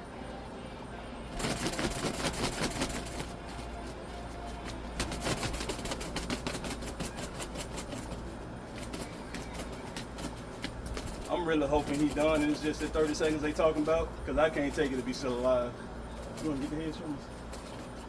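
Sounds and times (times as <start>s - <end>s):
chicken wings flapping on ground: 1.4s - 15.6s, 16.2s - 18.0s.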